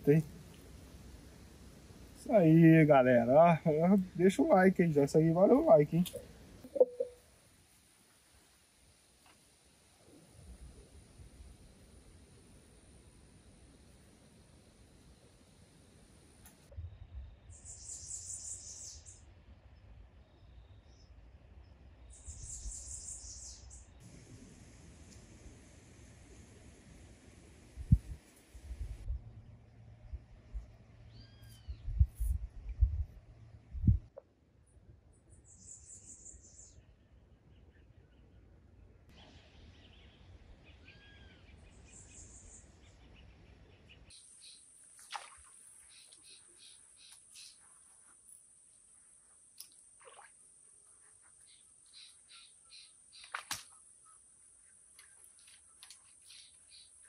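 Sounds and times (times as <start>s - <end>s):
bird chirps: 6.0s - 7.2s, 31.1s - 32.0s, 39.2s - 44.7s, 45.8s - 47.7s, 50.8s - 57.0s
high-pitched chirping: 6.7s - 7.2s
insects: 7.1s - 19.2s, 22.1s - 29.9s, 44.1s - 57.0s.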